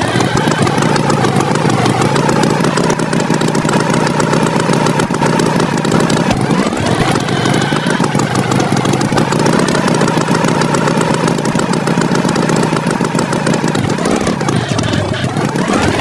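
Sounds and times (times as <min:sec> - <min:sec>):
cartoon tractor engine: 0:00.0 - 0:16.0.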